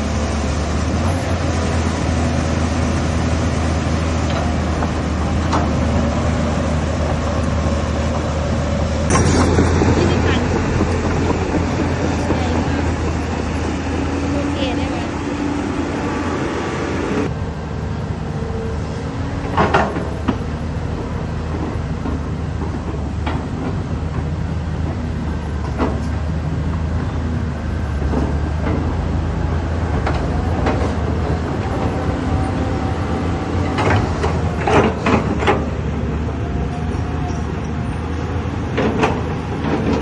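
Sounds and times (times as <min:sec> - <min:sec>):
excavator diesel engine: 0:00.0 - 0:40.0
sharp metal knocks and clanks: 0:09.1 - 0:13.2.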